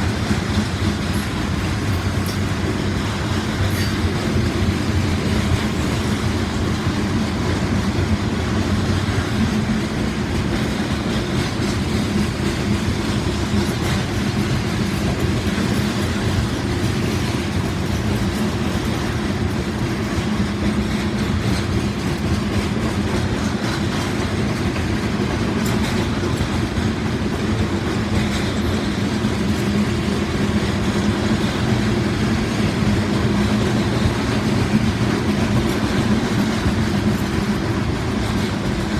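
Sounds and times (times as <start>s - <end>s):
freight train rumbling: 0.0s - 38.9s
train wheels clattering on rails: 0.0s - 38.9s.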